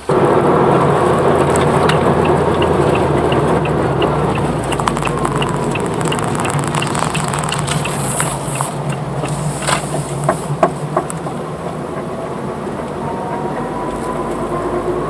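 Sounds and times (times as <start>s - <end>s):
car wheel bearing drone: 0.0s - 15.0s
quick regular ticking: 0.1s - 12.1s
sharp clicks: 1.1s - 11.3s.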